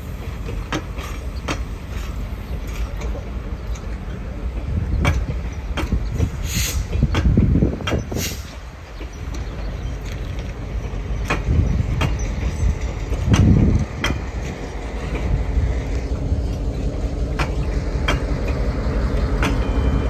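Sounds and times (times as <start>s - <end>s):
train rumbling on rails: 0.0s - 20.0s
sharp knocks and clunks: 5.0s - 6.3s, 10.8s - 15.3s, 17.3s - 18.6s
brief hisses: 6.3s - 7.0s, 8.1s - 8.6s.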